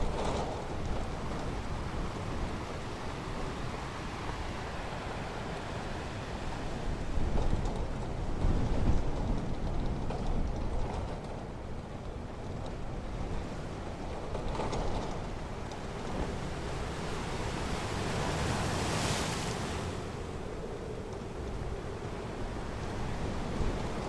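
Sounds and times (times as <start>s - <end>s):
ocean waves rushing: 16.4s - 20.4s
wave breaking and washing up: 16.4s - 20.4s.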